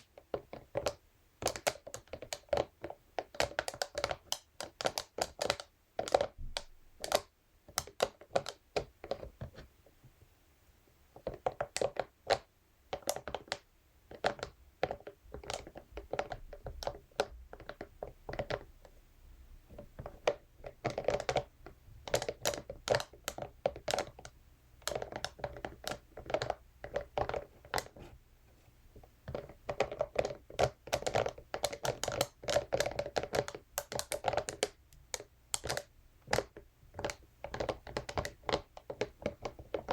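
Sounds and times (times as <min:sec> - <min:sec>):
brush tapping and scratching: 0:19.7 - 0:39.9.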